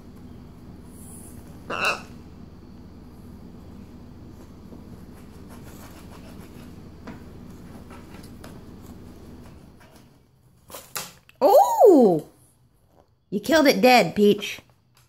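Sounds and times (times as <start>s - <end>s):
steady low hum: 0.0s - 10.8s
bird beak scratching: 0.9s - 2.2s, 4.3s - 10.1s.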